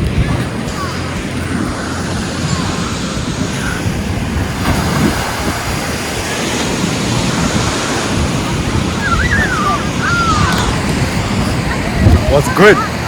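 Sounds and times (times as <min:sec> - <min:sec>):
ocean surf breaking on beach: 0:00.0 - 0:13.0.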